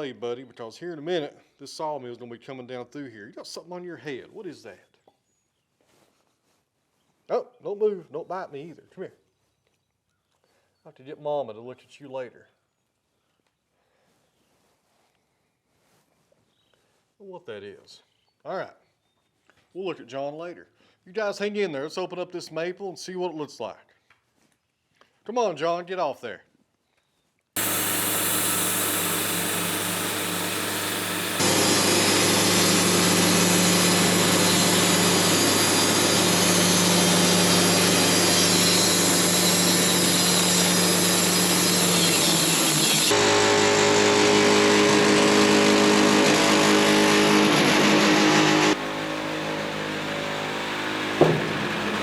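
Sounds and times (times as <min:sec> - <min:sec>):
sawmill engine sawing log: 0:27.6 - 0:52.0
sharp knock: 0:51.2 - 0:52.0.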